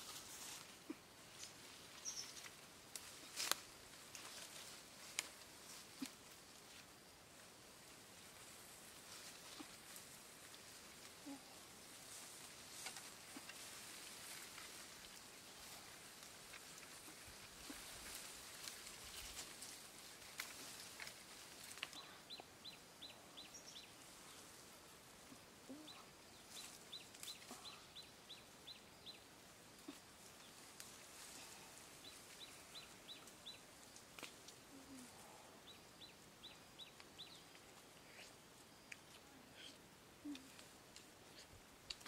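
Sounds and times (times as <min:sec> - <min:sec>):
rustling of leaves and twigs: 0:00.0 - 0:42.0
small bird calling: 0:00.5 - 0:02.5, 0:25.2 - 0:30.8, 0:32.0 - 0:42.0.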